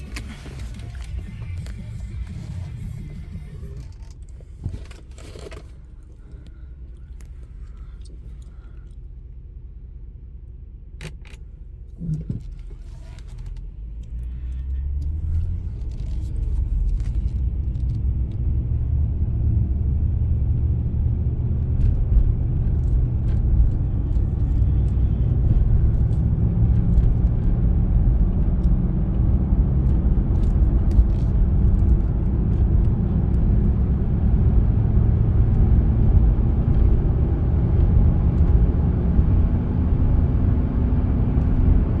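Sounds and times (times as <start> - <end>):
truck engine rumbling: 0.0 - 42.0.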